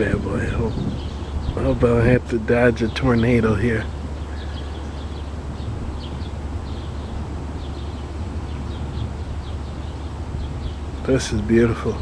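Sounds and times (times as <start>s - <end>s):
thunderstorm low rumble: 0.0s - 12.0s.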